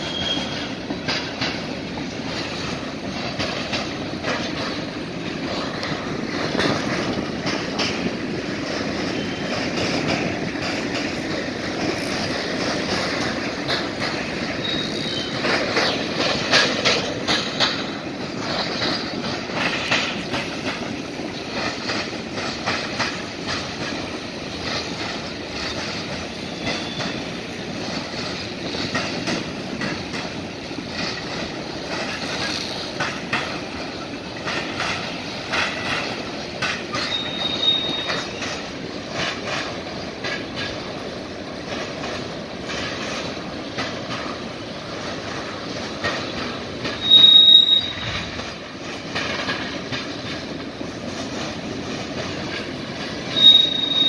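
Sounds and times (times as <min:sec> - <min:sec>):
faint high wheel squeals: 0:00.0 - 0:00.7, 0:14.6 - 0:15.4, 0:26.4 - 0:27.3, 0:36.9 - 0:38.6, 0:46.9 - 0:48.3, 0:53.2 - 0:54.0
train wheels clattering over crossing: 0:00.0 - 0:54.0.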